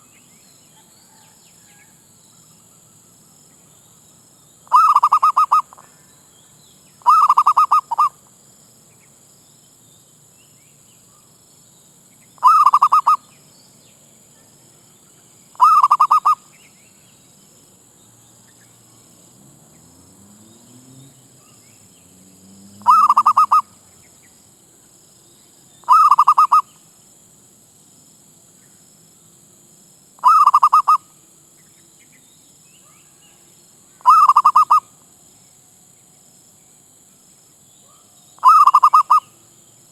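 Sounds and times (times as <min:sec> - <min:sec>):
dove cooing: 0:04.7 - 0:05.8, 0:07.0 - 0:08.1, 0:12.4 - 0:13.2, 0:15.6 - 0:16.4, 0:22.8 - 0:23.7, 0:25.9 - 0:26.6, 0:30.2 - 0:31.0, 0:34.0 - 0:34.8, 0:38.4 - 0:39.2.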